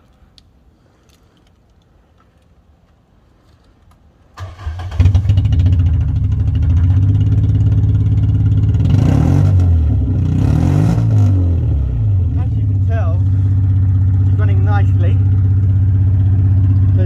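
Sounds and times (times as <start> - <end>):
car engine idling: 4.4 - 10.4, 11.4 - 17.0
car engine cranking and starting: 4.4 - 11.2.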